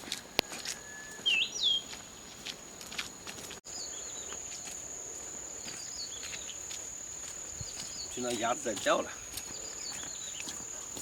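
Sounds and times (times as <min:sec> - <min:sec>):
crickets droning: 0:00.0 - 0:11.0
bird whistled chirps: 0:00.4 - 0:01.9.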